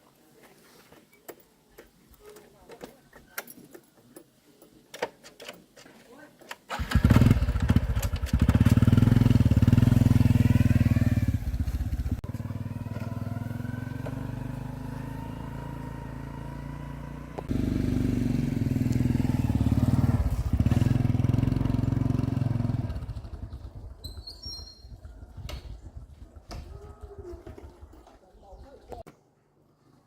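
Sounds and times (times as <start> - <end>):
motorbike engine running: 6.7 - 28.0.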